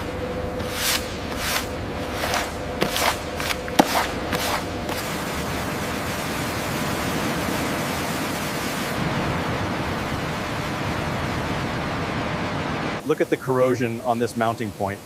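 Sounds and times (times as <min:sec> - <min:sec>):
steady rushing hiss: 0:00.0 - 0:15.0.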